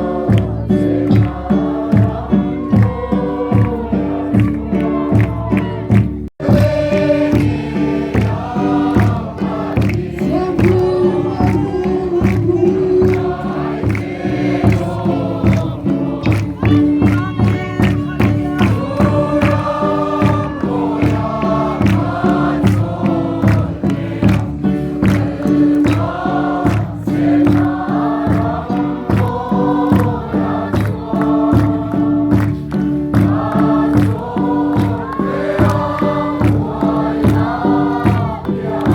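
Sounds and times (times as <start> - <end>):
group singing gospel song: 0.0 - 38.9
steady beat: 0.0 - 38.9.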